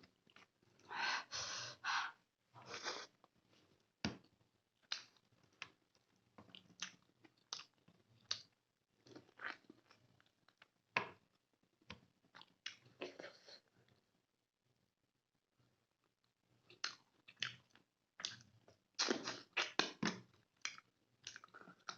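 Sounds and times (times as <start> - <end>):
person chewing with wet smacks: 4.8 - 10.7, 12.3 - 13.2, 16.7 - 21.9.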